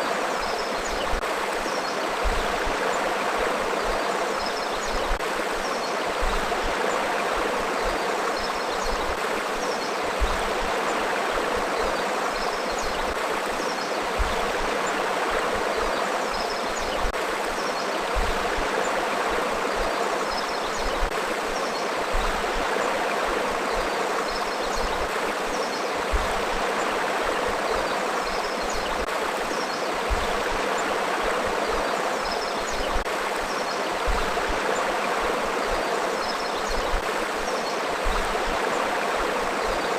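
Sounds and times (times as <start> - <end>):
river water burbling over rocks: 0.0 - 39.9.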